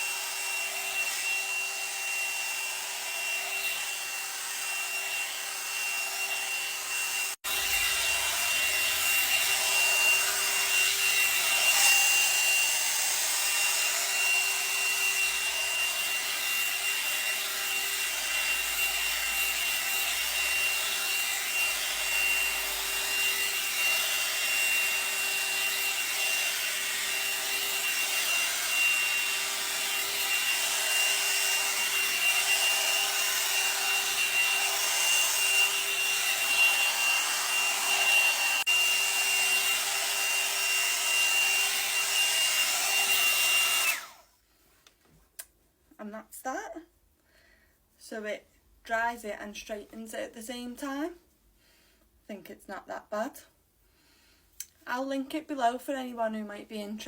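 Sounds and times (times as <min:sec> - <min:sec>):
hot air brush whirring: 0:00.0 - 0:44.3.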